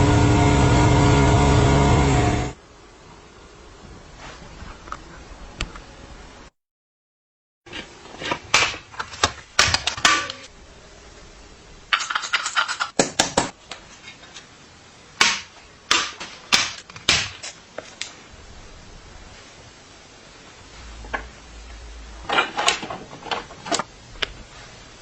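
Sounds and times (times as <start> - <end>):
sharp knocks and clicks on bicycle parts: 12.8 - 13.6.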